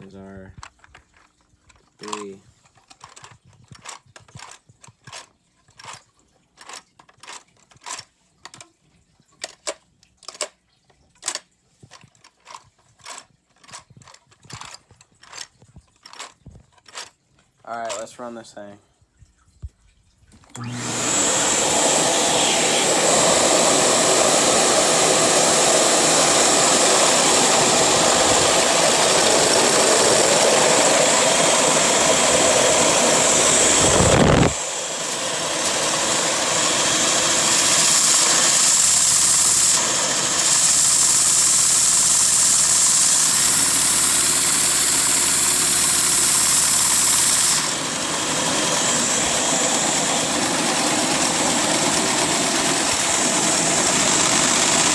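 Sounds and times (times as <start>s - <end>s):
pneumatic engine hissing: 21.0s - 54.9s.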